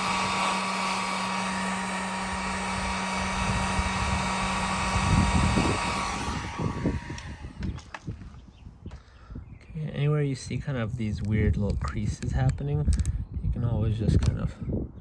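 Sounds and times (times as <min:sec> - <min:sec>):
heat gun blowing hiss: 0:00.0 - 0:08.0
low motor hum: 0:00.0 - 0:08.6.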